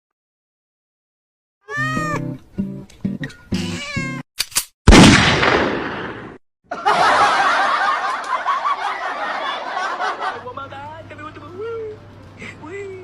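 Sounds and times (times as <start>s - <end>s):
music: 1.7s - 4.2s
loud explosion bang: 4.9s - 6.4s
people laughing: 6.7s - 10.5s.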